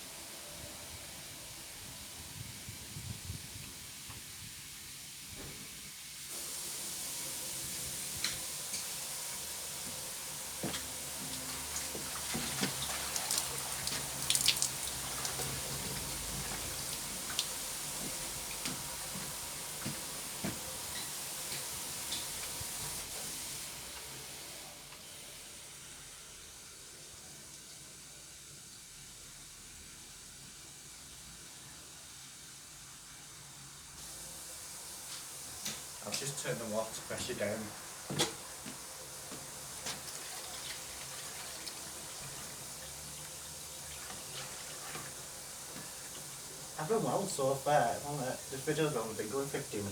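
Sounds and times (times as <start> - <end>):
water running from tap: 6.1 - 26.0, 34.0 - 49.9.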